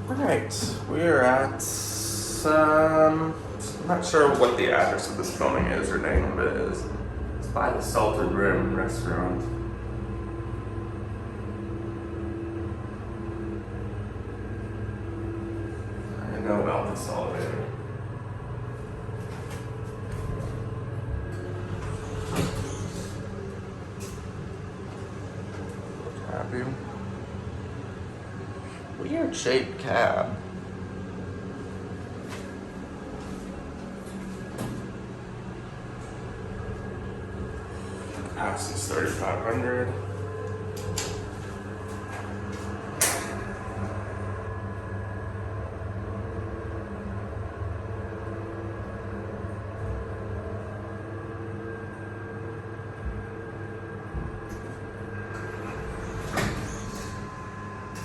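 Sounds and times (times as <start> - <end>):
elevator hum: 0.0 - 58.0
elevator clicks: 40.4 - 43.6.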